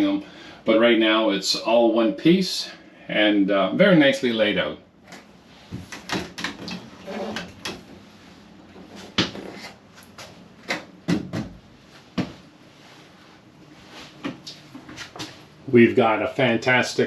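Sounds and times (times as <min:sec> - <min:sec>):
knocks and clicks in small room: 0:05.0 - 0:08.0, 0:08.6 - 0:11.6, 0:12.2 - 0:12.5.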